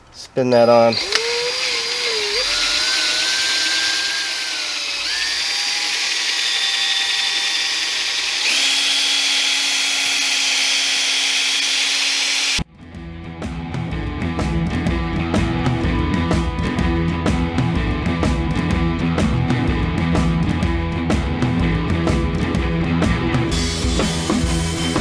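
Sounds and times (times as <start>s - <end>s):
electric drill motor whine: 0.9s - 12.6s
rock guitar music: 12.6s - 25.0s.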